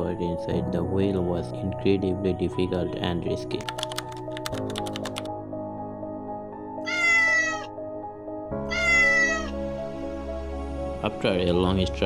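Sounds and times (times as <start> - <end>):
background music: 0.0 - 12.0
kitten meowing: 6.8 - 7.7, 8.7 - 9.6.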